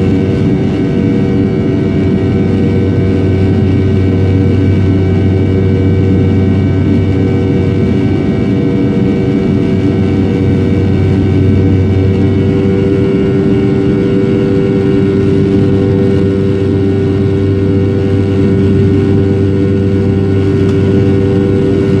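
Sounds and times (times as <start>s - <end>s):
jet engines droning: 0.0s - 22.0s.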